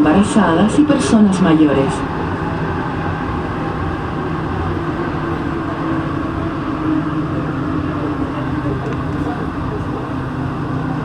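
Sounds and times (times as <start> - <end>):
humming tone: 0.0 - 11.0
train running rumble: 0.0 - 11.0.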